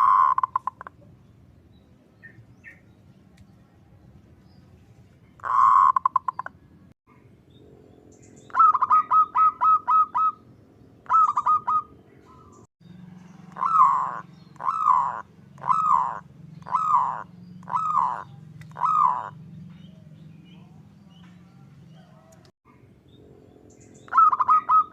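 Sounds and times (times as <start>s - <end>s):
dove cooing: 0.0s - 1.0s, 5.4s - 6.5s, 8.5s - 12.5s, 13.2s - 22.5s, 23.3s - 24.9s.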